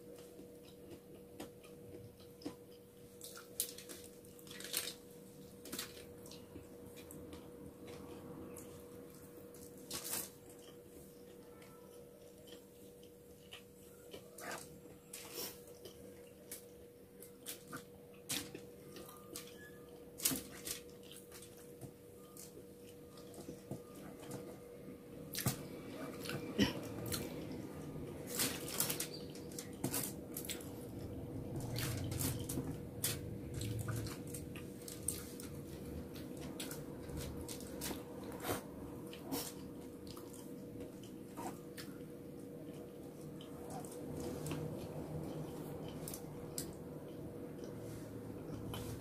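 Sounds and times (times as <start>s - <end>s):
faint steady hum: 0.0s - 49.0s
chewing with wet mouth clicks: 10.4s - 15.0s.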